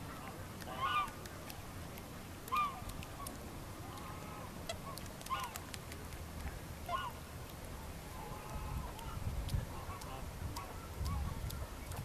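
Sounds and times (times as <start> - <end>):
geese honking: 0.0 - 1.2, 2.5 - 5.6, 6.8 - 7.2, 8.1 - 11.4.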